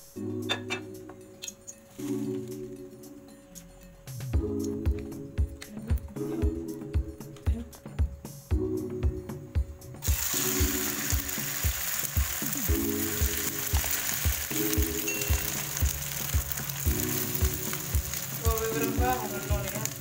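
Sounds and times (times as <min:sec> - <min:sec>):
background music with steady beat: 0:00.0 - 0:20.0
egg and potato sizzling in oil: 0:10.0 - 0:20.0.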